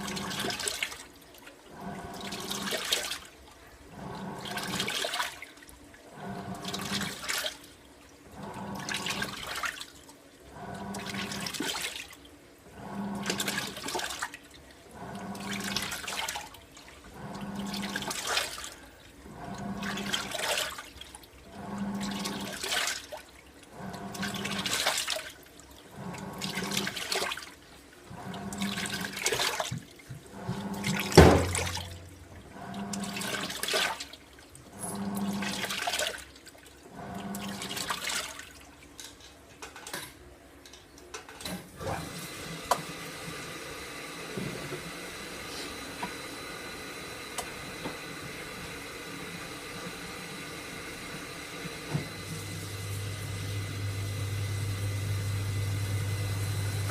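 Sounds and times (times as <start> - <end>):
washing machine water swishing: 0.0 - 40.0, 41.4 - 56.9
motor hum: 41.8 - 56.9.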